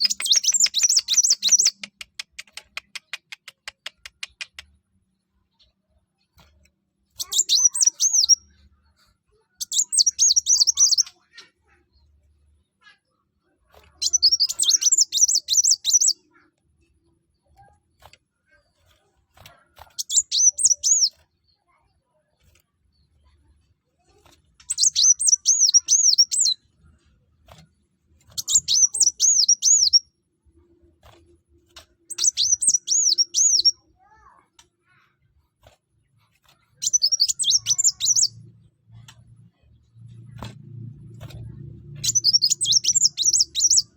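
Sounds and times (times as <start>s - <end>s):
sunbird singing: 0.0s - 1.9s, 7.2s - 8.7s, 9.3s - 11.4s, 13.9s - 16.5s, 19.9s - 21.2s, 24.0s - 26.7s, 28.3s - 30.1s, 32.0s - 33.8s, 36.7s - 39.0s, 41.5s - 43.9s
bird twittering song: 0.0s - 3.3s, 4.0s - 13.0s, 13.8s - 34.3s, 36.6s - 43.9s.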